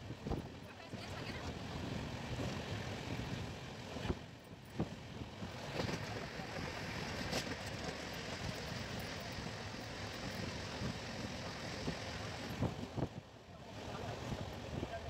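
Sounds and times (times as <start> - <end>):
wheel rumble on rails: 0.0 - 13.3
rushing wind: 0.0 - 15.0
wheels clacking over rail joints: 5.5 - 12.4.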